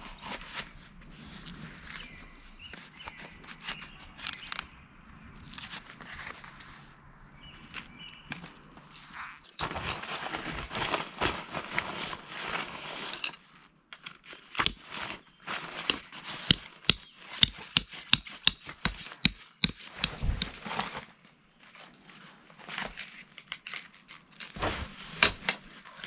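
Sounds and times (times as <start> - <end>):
sharp clicks and knocks: 14.6 - 14.9, 15.9 - 21.0.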